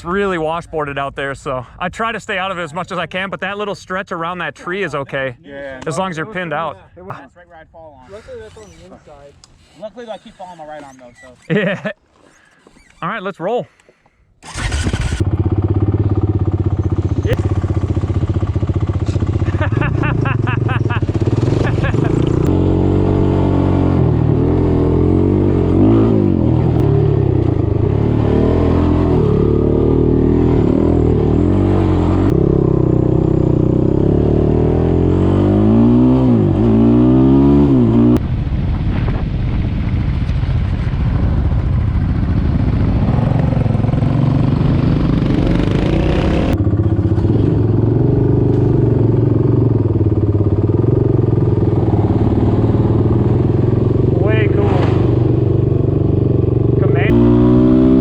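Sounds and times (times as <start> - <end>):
off-road vehicle engine revving: 14.4 - 38.2, 43.0 - 58.0.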